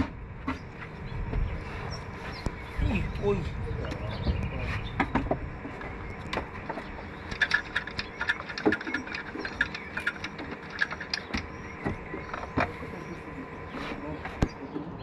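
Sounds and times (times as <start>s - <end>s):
small tools clicking and clinking: 7.2s - 11.5s.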